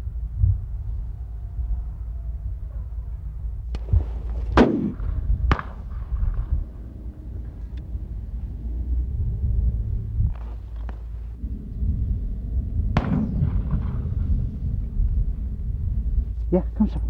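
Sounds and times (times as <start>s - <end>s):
shotgun shots: 4.5s - 6.5s, 13.0s - 14.3s.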